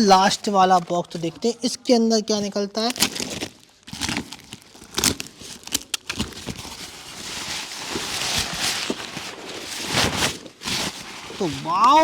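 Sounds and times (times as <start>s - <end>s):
packing paper rustling: 2.2s - 12.0s
cardboard flaps and tape crackling: 2.8s - 12.0s.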